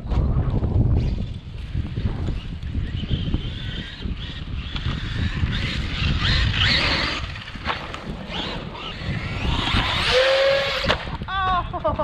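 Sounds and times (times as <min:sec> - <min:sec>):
wind on microphone: 0:00.0 - 0:12.0
electric motor whining: 0:02.3 - 0:11.3.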